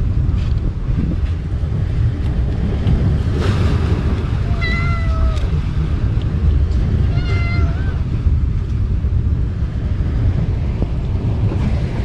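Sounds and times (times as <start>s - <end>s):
low wind rumble: 0.0s - 12.0s
animal meow-like cry: 4.4s - 5.5s, 7.1s - 8.1s.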